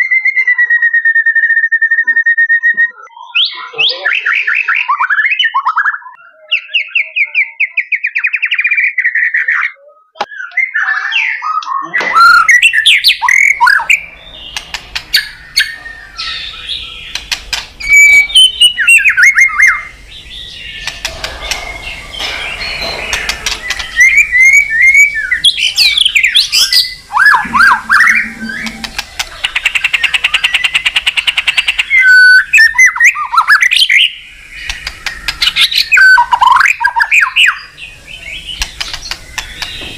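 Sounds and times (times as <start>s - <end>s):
bird song with whistles and trills: 0.0s - 39.9s
sharp clicks: 14.5s - 15.1s, 17.1s - 17.8s, 38.6s - 39.8s
low hum: 26.9s - 30.4s.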